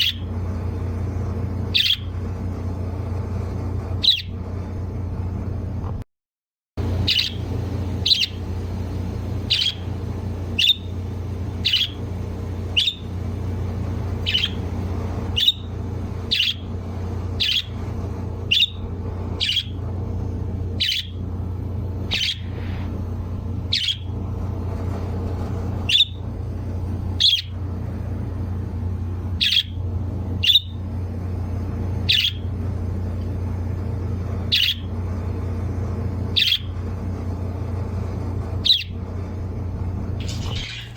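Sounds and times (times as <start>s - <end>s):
steady low hum: 0.0s - 6.0s, 6.8s - 40.9s
bird chirping: 1.8s - 2.1s, 7.0s - 13.2s, 14.2s - 15.7s, 16.3s - 16.6s, 17.4s - 17.8s, 18.5s - 18.8s, 19.4s - 19.8s, 20.8s - 21.2s, 22.1s - 22.6s, 23.7s - 24.1s, 27.2s - 27.5s, 32.1s - 32.4s, 40.2s - 40.9s.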